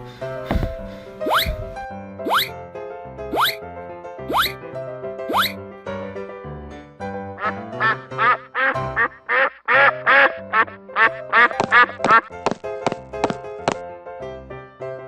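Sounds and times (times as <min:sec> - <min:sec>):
background music: 0:00.0 - 0:15.0
duck quacks: 0:05.3 - 0:05.6, 0:07.4 - 0:12.3.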